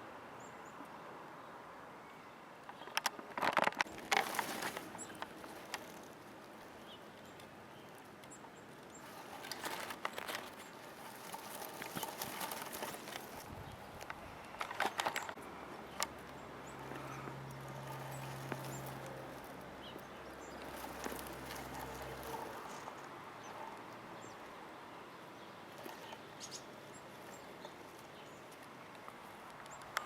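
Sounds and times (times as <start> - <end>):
rustling: 2.7 - 23.9.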